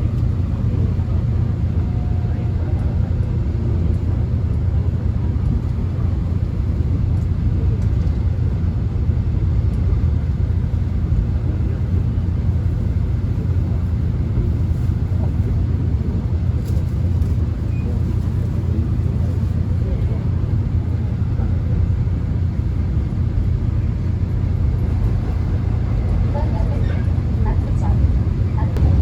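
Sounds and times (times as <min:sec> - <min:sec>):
subway train rumbling: 0:00.0 - 0:29.0.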